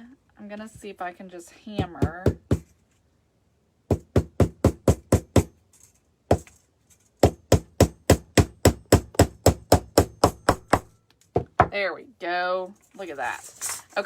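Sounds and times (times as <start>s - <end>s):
hammer tapping nail: 3.9s - 5.6s, 7.2s - 11.7s.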